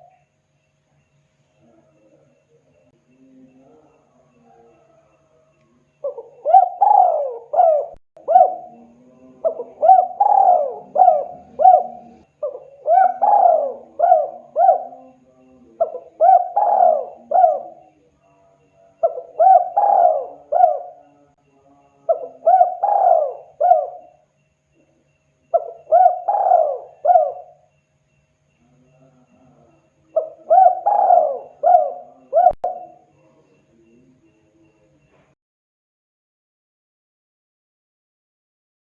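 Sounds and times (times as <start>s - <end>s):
dove cooing: 6.0s - 18.0s, 19.0s - 21.3s, 22.0s - 24.2s, 24.8s - 27.7s, 28.6s - 34.0s.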